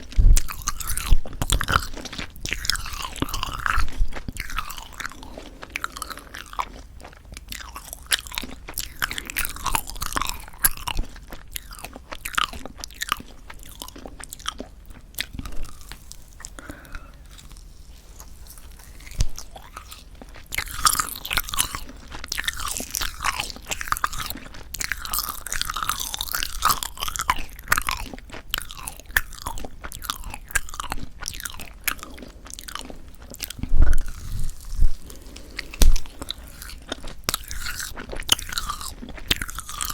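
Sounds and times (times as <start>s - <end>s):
close chewing with sticky smacking: 0.0s - 39.9s.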